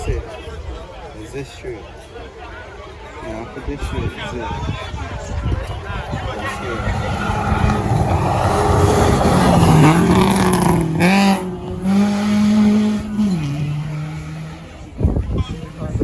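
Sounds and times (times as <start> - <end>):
rally car passing at speed: 4.9 - 15.0.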